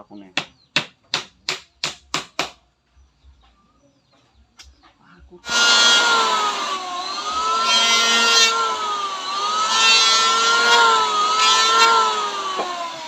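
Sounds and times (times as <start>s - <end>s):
power tool motor whine: 5.4s - 13.0s.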